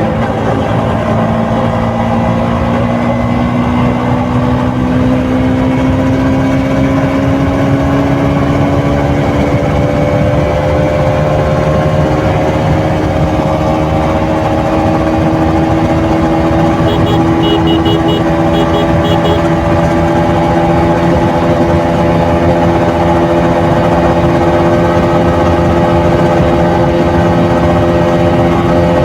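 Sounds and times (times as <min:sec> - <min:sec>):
motorcycle engine revving: 0:13.9 - 0:20.4.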